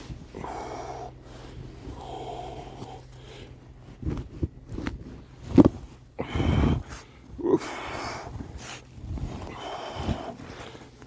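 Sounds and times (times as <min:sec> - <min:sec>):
man breathing hard: 0:00.2 - 0:03.9, 0:06.2 - 0:11.0.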